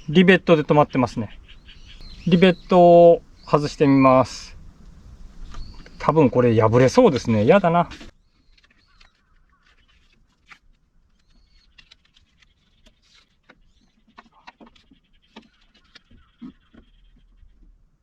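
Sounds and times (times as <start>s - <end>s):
plastic squeaks: 6.8s - 17.8s.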